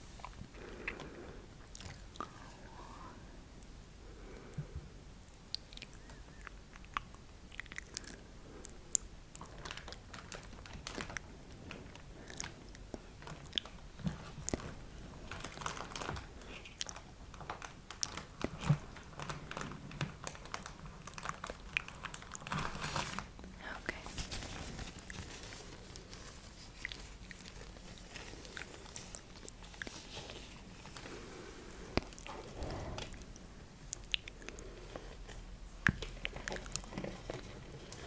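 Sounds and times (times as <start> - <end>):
wet mouth clicks: 5.2 - 8.2, 33.9 - 34.6.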